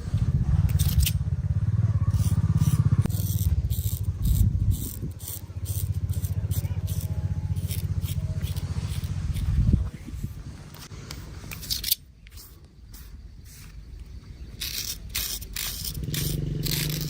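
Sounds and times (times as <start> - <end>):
loud low steady hum: 0.0 - 11.2.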